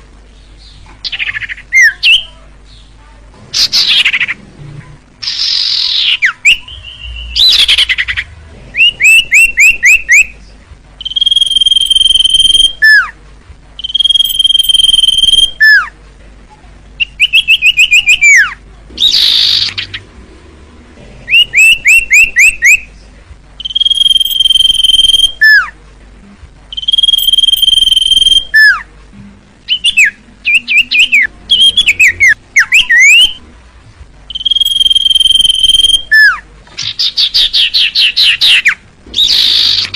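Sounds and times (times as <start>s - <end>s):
bird singing with whistles: 1.0s - 2.3s, 5.2s - 10.4s, 11.0s - 13.1s, 13.8s - 15.9s, 17.0s - 20.0s, 21.3s - 22.9s, 23.6s - 25.7s, 26.7s - 28.8s, 29.7s - 33.4s, 34.3s - 39.9s.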